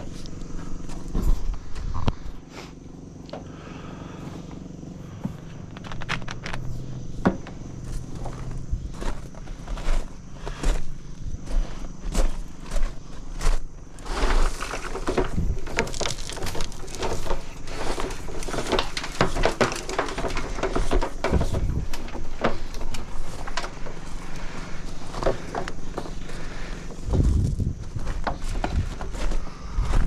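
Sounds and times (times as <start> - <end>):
engine running steadily: 0.0 - 30.0
knocks scrapes and clatter: 11.5 - 30.0.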